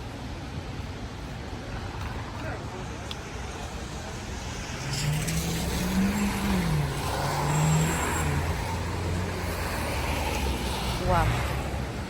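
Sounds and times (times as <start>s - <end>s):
traffic noise: 0.0s - 12.0s
vehicle driving past: 4.2s - 12.0s.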